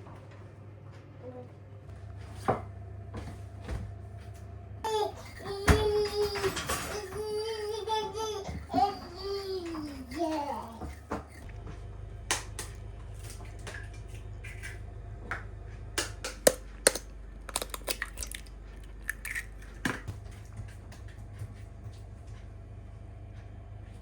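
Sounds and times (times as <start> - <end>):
steady low hum: 0.0 - 24.0
handling clicks and knocks: 16.3 - 20.2.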